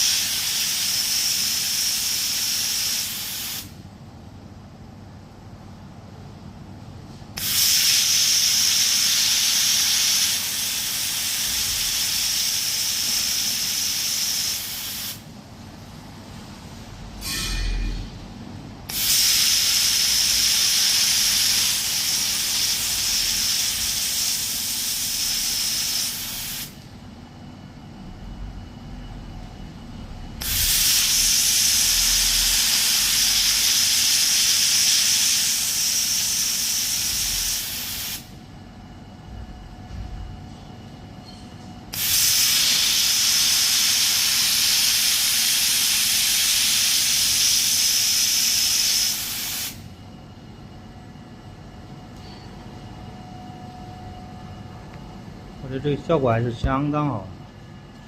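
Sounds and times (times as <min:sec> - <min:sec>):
laser welding machine hissing: 0:00.0 - 0:03.8, 0:07.3 - 0:15.3, 0:18.8 - 0:26.9, 0:30.2 - 0:38.4, 0:41.9 - 0:50.0.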